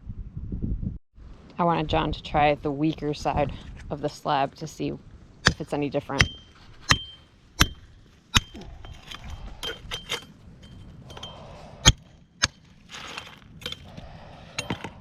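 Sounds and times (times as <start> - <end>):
metal tool striking concrete: 5.4 - 14.0.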